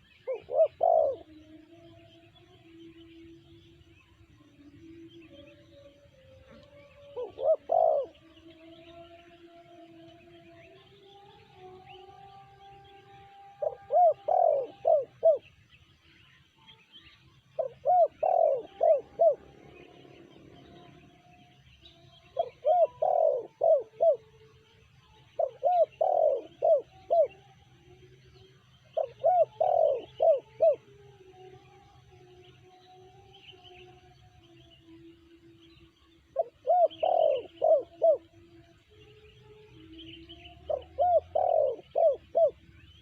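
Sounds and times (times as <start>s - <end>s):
dove cooing: 0.0s - 1.4s, 6.6s - 8.6s, 13.5s - 15.5s, 17.6s - 21.2s, 22.3s - 24.3s, 25.3s - 27.4s, 28.9s - 30.8s, 36.3s - 38.3s, 39.8s - 42.8s.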